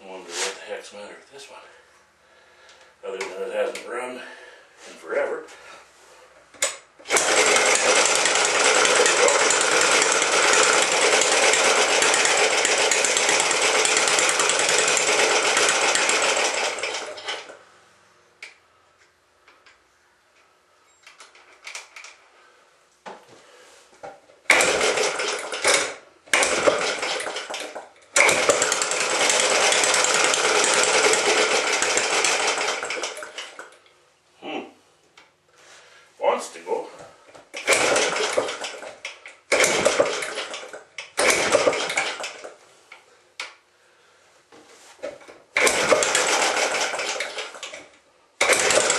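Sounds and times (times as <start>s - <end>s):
small gasoline engine running: 7.0s - 17.6s, 24.5s - 33.8s, 37.5s - 42.6s, 45.6s - 48.9s.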